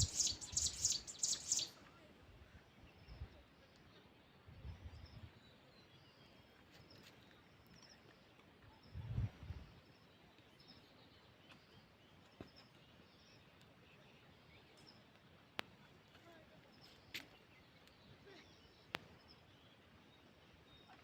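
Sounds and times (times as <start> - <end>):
bird chirps: 0.0 - 1.8.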